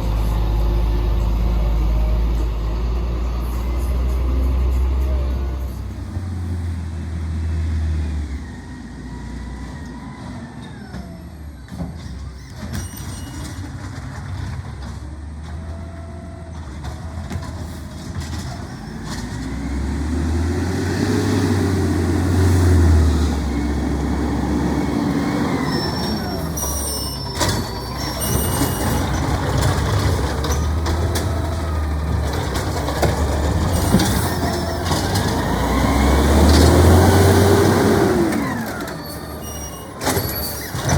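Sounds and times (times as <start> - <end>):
garbage truck engine running: 0.0 - 40.9
short high squeaks: 12.0 - 13.8, 25.4 - 31.0, 33.7 - 35.5, 38.4 - 40.9.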